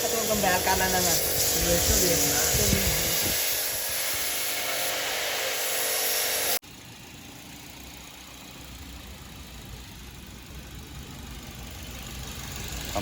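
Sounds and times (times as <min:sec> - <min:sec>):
loud even hiss: 0:00.0 - 0:06.6
car engine idling: 0:06.6 - 0:13.0.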